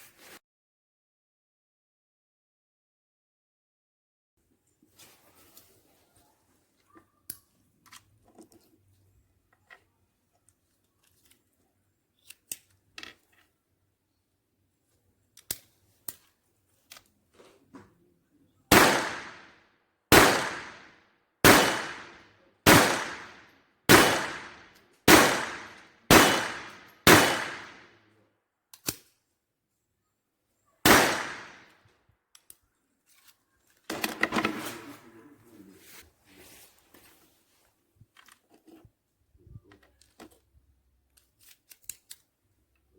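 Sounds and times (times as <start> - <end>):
gun handling clicks: 15.4 - 16.3, 28.7 - 29.2, 30.9 - 31.6, 41.1 - 42.3
pistol shots: 18.7 - 19.5, 20.1 - 27.9, 30.9 - 31.7.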